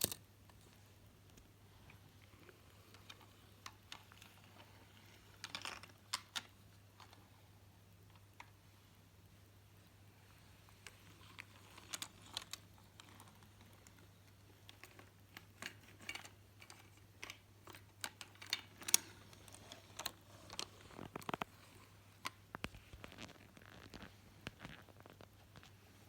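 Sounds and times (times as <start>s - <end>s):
toy cars clicking together: 0.0s - 0.2s, 10.9s - 13.6s, 14.8s - 21.4s.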